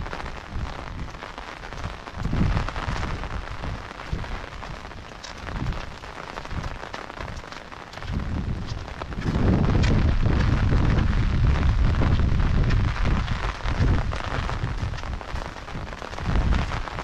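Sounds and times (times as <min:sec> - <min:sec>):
rain falling: 0:00.0 - 0:17.0
choppy low rumble: 0:08.1 - 0:17.0.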